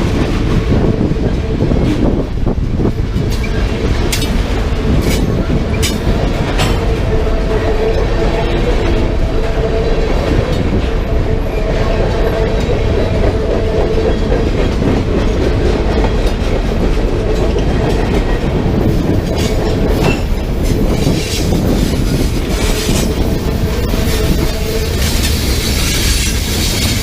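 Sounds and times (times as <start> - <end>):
freight train cars rumbling past: 0.0 - 27.0
train wheels whining: 0.0 - 27.0
wheels clicking over rail joints: 1.8 - 7.3, 12.3 - 27.0.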